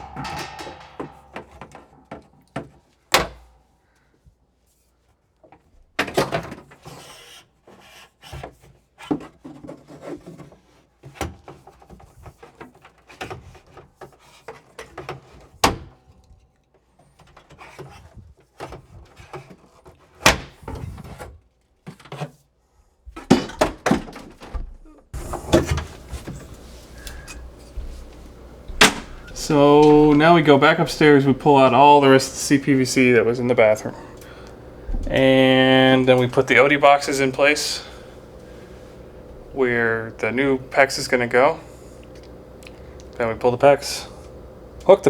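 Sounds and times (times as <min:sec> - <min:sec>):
pipe knocking and rattling: 0:00.0 - 0:03.3, 0:25.2 - 0:31.8.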